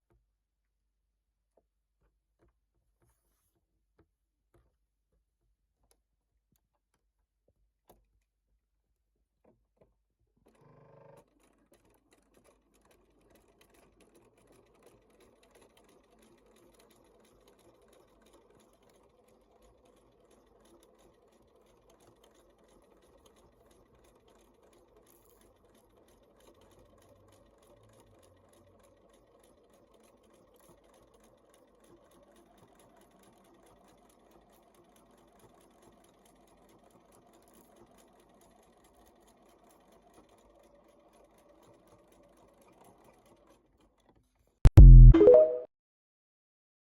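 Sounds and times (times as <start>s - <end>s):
sewing machine clicks: 10.4s - 44.2s
sewing machine stitching: 10.4s - 44.4s.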